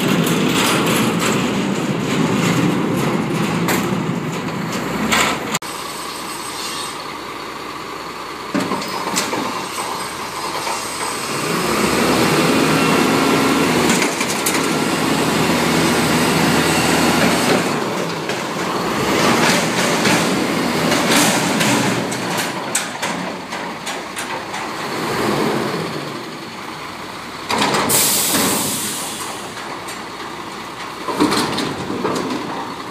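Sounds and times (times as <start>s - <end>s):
garbage truck diesel engine: 0.0s - 32.9s.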